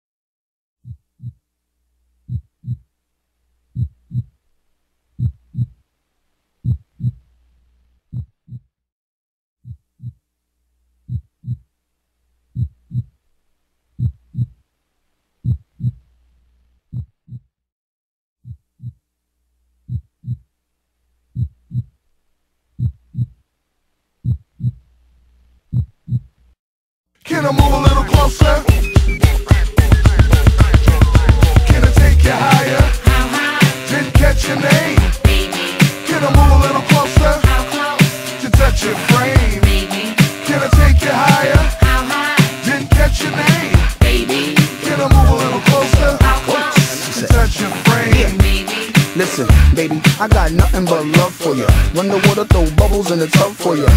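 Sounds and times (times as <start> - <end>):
heartbeat thumps: 0.8 - 1.4, 2.2 - 2.9, 3.7 - 4.4, 5.2 - 5.8, 6.6 - 7.2, 9.6 - 10.2, 11.1 - 11.6, 12.5 - 13.2, 14.0 - 14.6, 15.4 - 16.0, 19.8 - 20.4, 21.3 - 22.0, 22.8 - 23.4, 24.2 - 24.8, 25.7 - 26.4, 27.6 - 33.4, 34.2 - 35.5, 36.4 - 37.7, 38.6 - 42.1, 42.9 - 44.3, 45.1 - 46.5, 47.3 - 48.6, 49.5 - 50.9, 51.7 - 53.0.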